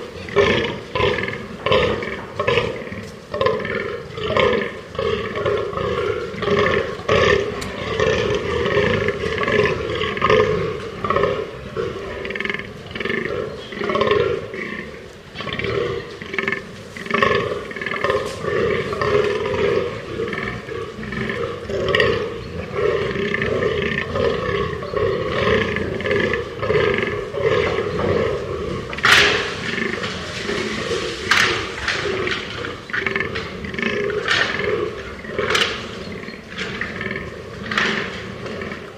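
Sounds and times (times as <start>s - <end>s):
deer groaning: 0.0s - 38.9s
sharp clicks: 28.9s - 37.0s.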